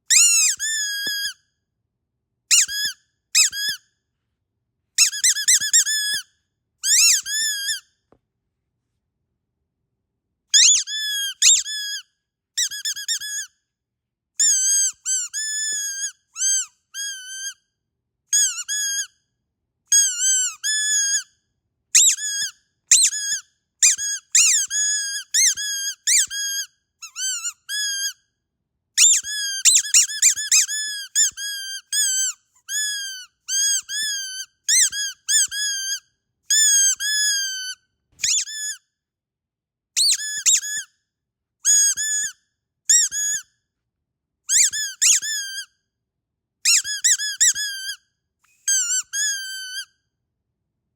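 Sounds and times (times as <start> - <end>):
squeaky dog toy squeaking: 0.1 - 1.4, 2.5 - 3.9, 5.0 - 8.0, 10.5 - 13.6, 14.4 - 17.6, 18.3 - 19.2, 19.9 - 21.4, 22.0 - 28.3, 29.0 - 38.9, 40.0 - 40.9, 41.6 - 43.5, 44.5 - 45.8, 46.6 - 50.0.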